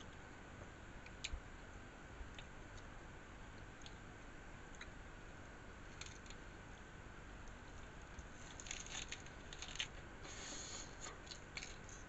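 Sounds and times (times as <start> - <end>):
person crunching a taco: 8.3 - 9.9.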